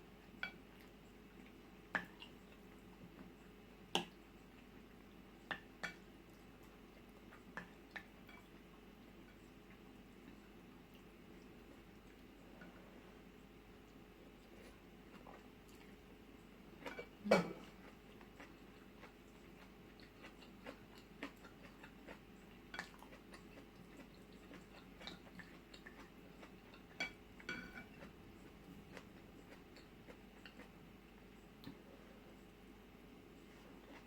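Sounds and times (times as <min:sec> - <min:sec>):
quiet chewing: 0:00.2 - 0:34.0
cutlery clinking on dishes: 0:27.0 - 0:28.0.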